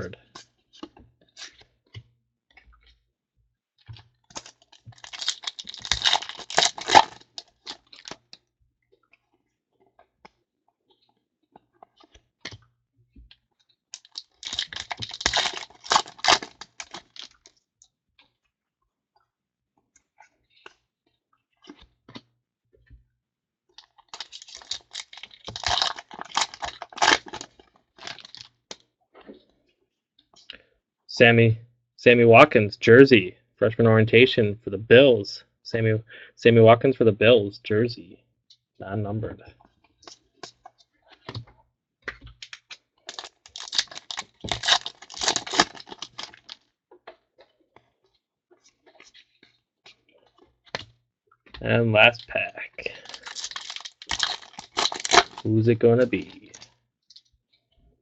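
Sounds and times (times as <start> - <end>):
foil wrappers crinkling and tearing: 4.3 - 8.2, 14.0 - 17.6, 23.8 - 28.5, 42.4 - 46.6, 52.8 - 57.2.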